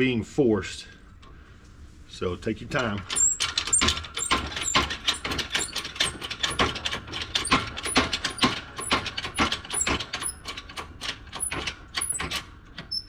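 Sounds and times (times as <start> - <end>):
press clicks and creaks: 2.8 - 13.0.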